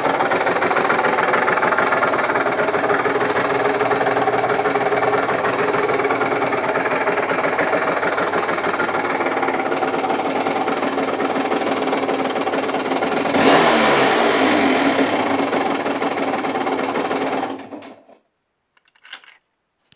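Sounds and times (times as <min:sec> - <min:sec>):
motorcycle engine idling and revving: 0:00.0 - 0:17.9.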